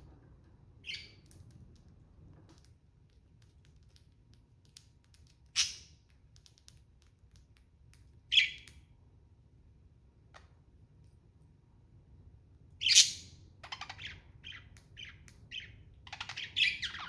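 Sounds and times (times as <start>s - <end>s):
faint chirps and clicks: 0.8s - 8.9s, 13.6s - 17.0s
budgies chirping: 12.8s - 17.0s.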